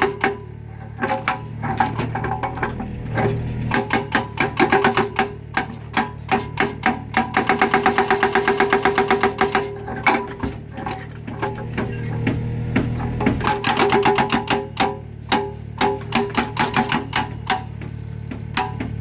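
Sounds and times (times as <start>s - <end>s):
excavator engine droning: 0.0s - 19.0s
hydraulic hammer pounding concrete: 0.0s - 19.0s.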